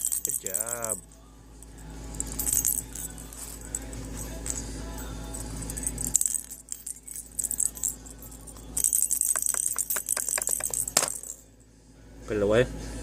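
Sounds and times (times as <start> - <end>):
bird shaking jingling toy: 0.0 - 1.0, 2.1 - 11.4.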